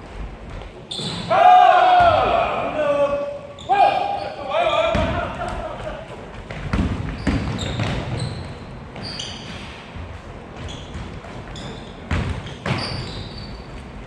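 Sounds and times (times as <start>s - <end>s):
sneakers squeaking on court floor: 0.4s - 1.4s, 3.4s - 14.0s
basketball bouncing: 4.9s - 13.4s.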